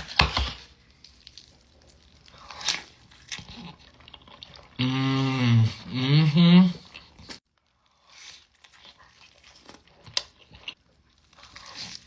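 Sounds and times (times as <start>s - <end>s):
close-up chewing: 0.0s - 4.8s, 6.6s - 12.0s
person humming mmm: 4.8s - 6.9s.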